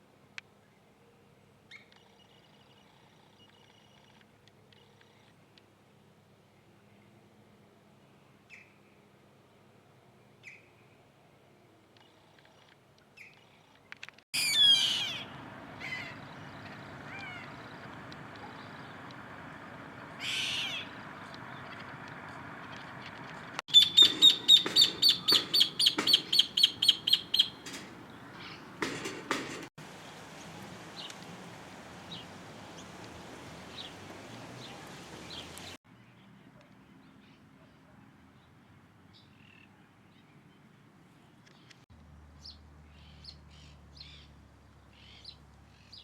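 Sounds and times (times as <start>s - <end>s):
bird calls: 14.4s - 29.7s
rapid high bird notes: 14.4s - 29.7s
faint bird chirps: 23.7s - 28.7s.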